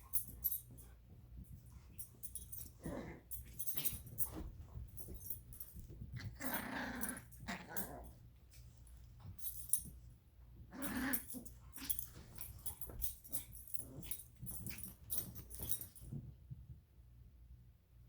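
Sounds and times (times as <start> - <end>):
light clicks and jingles: 0.0 - 16.4
dogs growling: 2.6 - 4.0, 6.2 - 8.2, 10.7 - 14.8.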